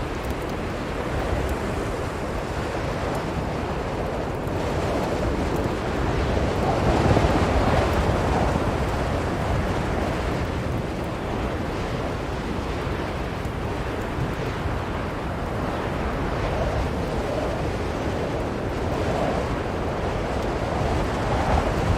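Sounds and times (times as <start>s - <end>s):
strong blizzard wind: 0.0s - 21.9s.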